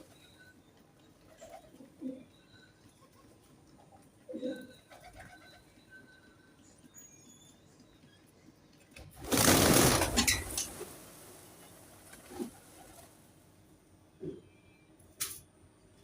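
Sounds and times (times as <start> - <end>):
pigeon wings clattering: 9.1 - 11.0.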